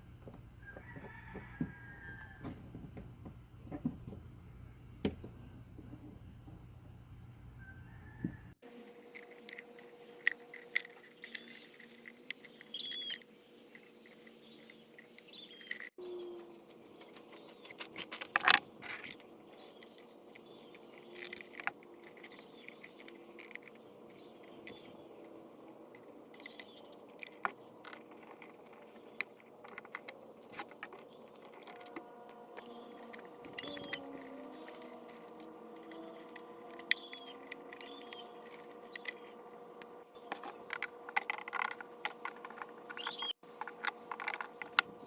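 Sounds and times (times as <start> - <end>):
faint bird chirps: 7.5 - 8.3, 11.1 - 17.8, 43.0 - 43.4
hand tools clicking and scraping: 9.1 - 13.2, 13.8 - 45.0.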